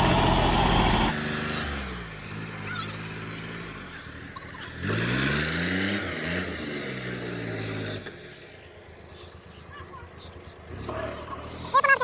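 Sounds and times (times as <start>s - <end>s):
tractor engine revving: 0.0s - 1.7s.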